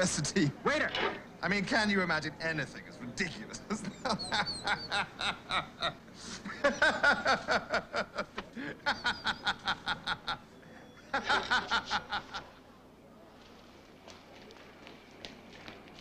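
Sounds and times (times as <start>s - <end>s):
mocking laughter: 3.7s - 12.5s.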